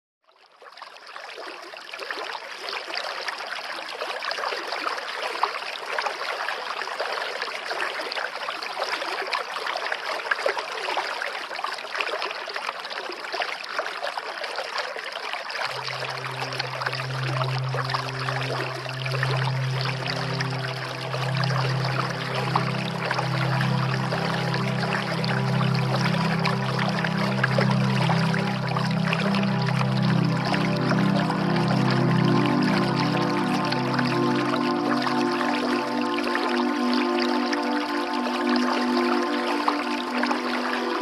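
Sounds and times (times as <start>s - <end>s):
water running and trickling: 14.2s - 41.0s
low steady drone: 15.6s - 41.0s.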